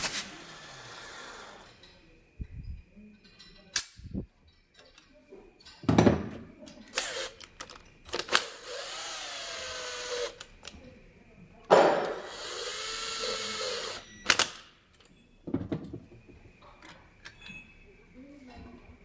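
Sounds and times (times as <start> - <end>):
power tool whining: 0.0 - 1.8, 6.9 - 7.5, 8.1 - 10.7, 11.9 - 14.6.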